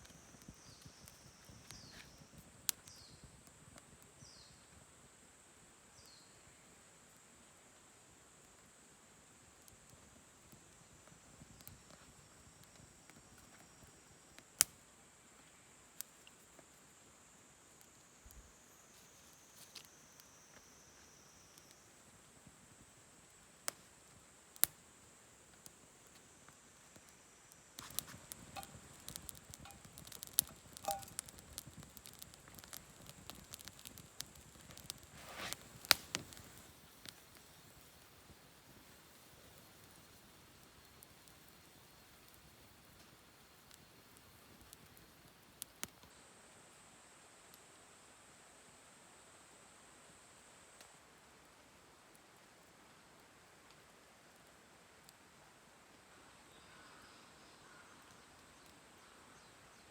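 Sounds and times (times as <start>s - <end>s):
campfire crackling: 0.0s - 46.2s, 50.0s - 56.1s
faint high hiss: 0.0s - 59.9s
sharp fire pop: 27.8s - 37.9s.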